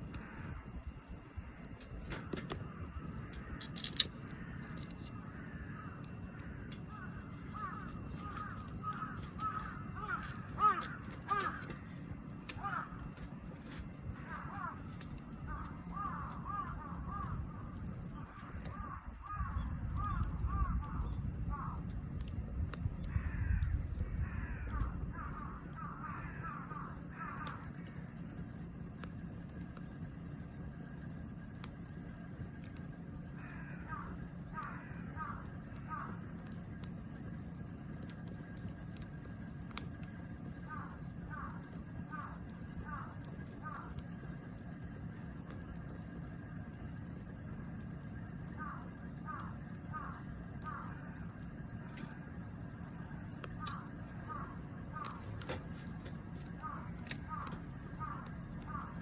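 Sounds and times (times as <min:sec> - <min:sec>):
campfire crackling: 0:00.0 - 0:59.0
low rumble: 0:00.0 - 0:59.0
bird harsh falling calls: 0:03.4 - 0:13.2, 0:13.8 - 0:21.9, 0:33.3 - 0:36.5, 0:40.6 - 0:44.2, 0:48.5 - 0:51.2, 0:53.2 - 0:59.0
bird calling in quick notes: 0:53.4 - 0:59.0.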